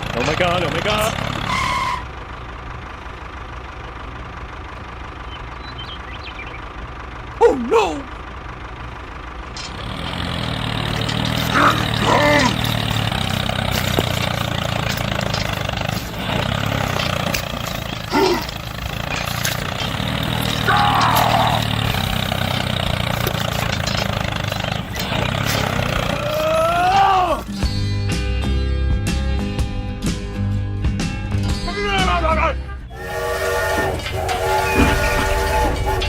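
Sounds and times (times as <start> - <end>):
voice exclamations: 7.4 - 8.2
motor humming: 32.9 - 36.0.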